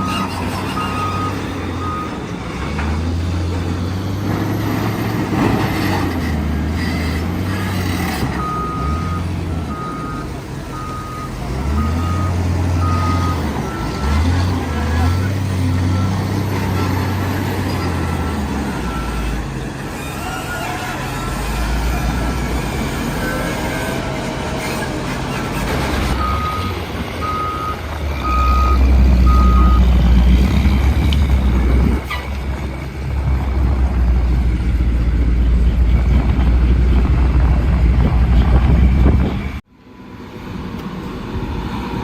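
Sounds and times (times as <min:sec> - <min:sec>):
heavy truck engine running: 0:00.0 - 0:42.0
reversing alarm beeping: 0:08.4 - 0:14.2, 0:26.2 - 0:29.9.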